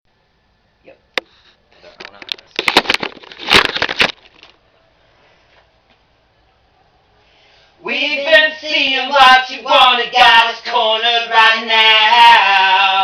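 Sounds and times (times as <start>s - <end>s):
crackling clicks and rustles: 1.2s - 4.6s.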